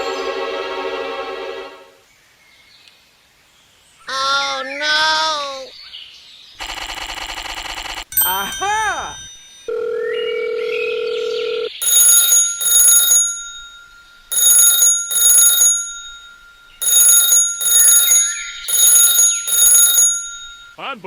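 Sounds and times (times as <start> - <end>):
bell-like ring tone: 8.1 - 21.0.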